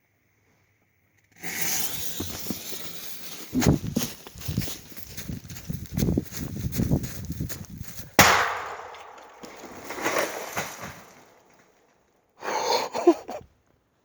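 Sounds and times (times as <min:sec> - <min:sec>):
small cracks and clatters: 0:01.1 - 0:12.2
echo: 0:08.2 - 0:09.4
firework bang: 0:08.2 - 0:11.2.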